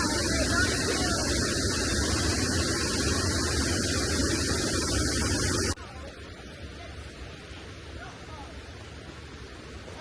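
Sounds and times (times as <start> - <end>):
loud rushing noise: 0.0 - 5.8
quiet hiss: 0.0 - 10.0.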